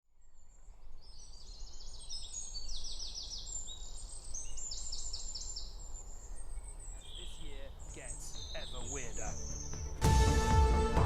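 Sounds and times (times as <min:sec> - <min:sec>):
birds chirping: 0:00.1 - 0:11.0.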